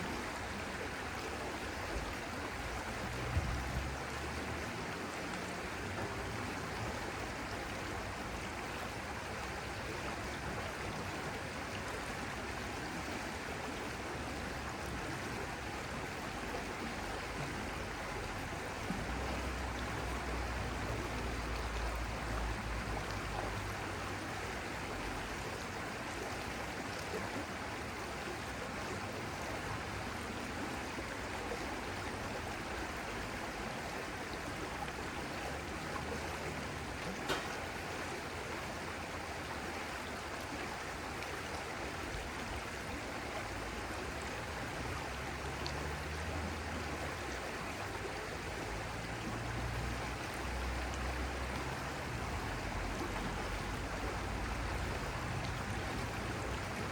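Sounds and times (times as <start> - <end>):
stream water flowing: 0.0 - 56.9.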